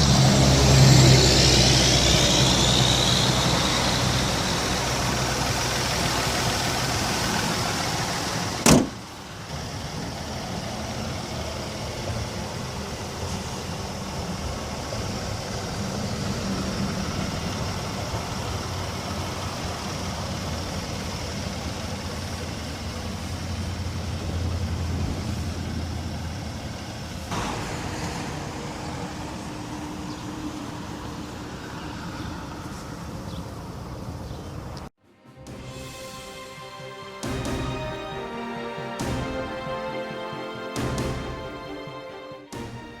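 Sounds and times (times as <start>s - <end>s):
car engine running: 0.0s - 10.1s.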